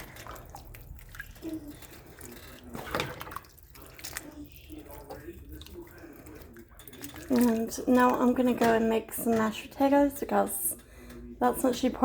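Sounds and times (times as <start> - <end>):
liquid dripping: 0.0 - 8.7
pot simmering and bubbling: 0.0 - 12.0.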